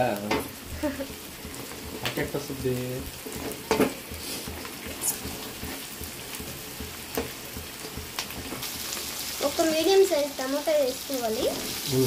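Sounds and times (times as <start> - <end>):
spatula knocking on pan: 0.0 - 9.2
spatula scraping a pan: 0.0 - 9.7
food sizzling in oil: 0.0 - 12.0.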